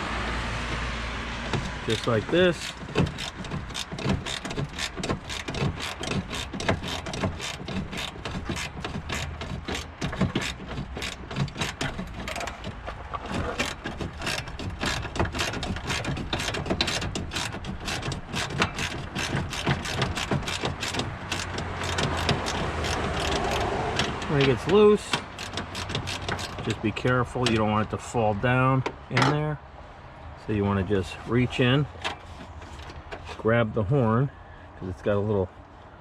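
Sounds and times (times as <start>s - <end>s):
ratchet wrench clicking: 1.6s - 12.5s, 13.6s - 26.7s.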